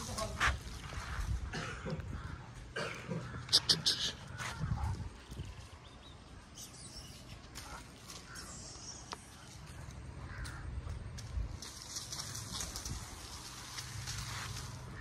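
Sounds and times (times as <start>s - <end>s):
faint bird caws: 1.0s - 5.0s, 7.6s - 11.0s.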